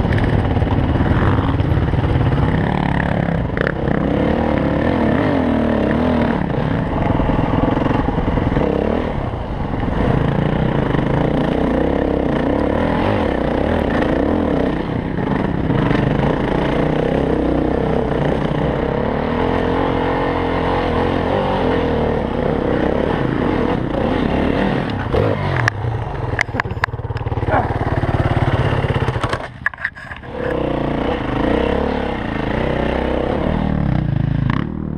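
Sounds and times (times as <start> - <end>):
dirt bike engine revving: 0.0 - 34.9
clattering and scraping underneath: 29.1 - 30.6.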